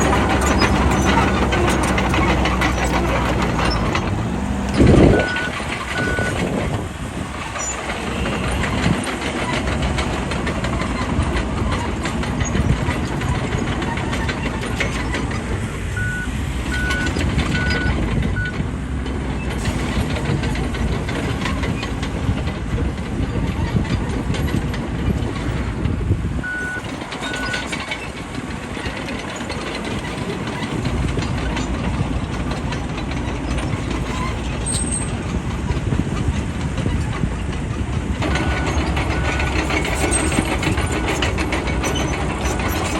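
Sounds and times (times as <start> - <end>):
crawler tracks clattering: 0.0 - 42.9
diesel engine under load: 0.0 - 42.9
reversing alarm beeping: 4.8 - 6.4, 16.0 - 18.6, 26.4 - 27.7, 38.3 - 39.6.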